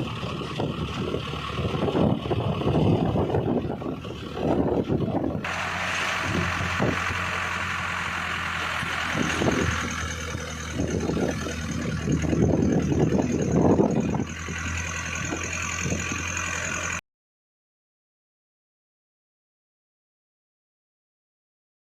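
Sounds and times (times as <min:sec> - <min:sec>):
low rumbling surges: 0:00.0 - 0:16.9
road and wind noise: 0:00.0 - 0:17.0
vehicle engine hum: 0:00.0 - 0:17.0.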